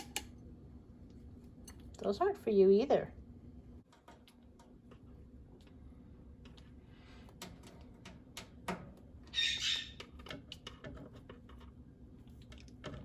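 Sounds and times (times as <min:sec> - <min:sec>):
parrot squawk: 0:09.3 - 0:10.0.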